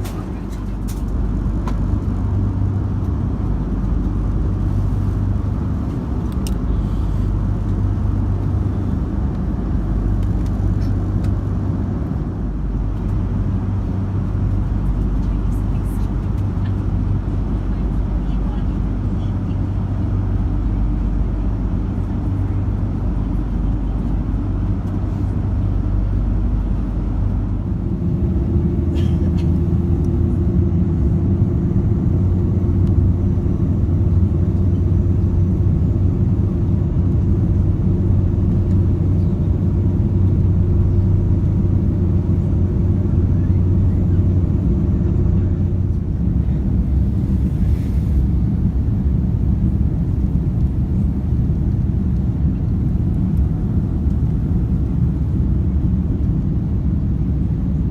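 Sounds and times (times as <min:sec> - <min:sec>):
airplane cabin engine rumble: 0:00.0 - 0:57.9.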